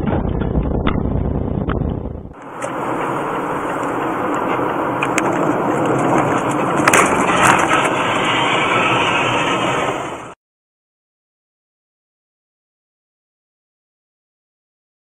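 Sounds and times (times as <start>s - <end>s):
vehicle road and wind noise: 0.0s - 10.4s.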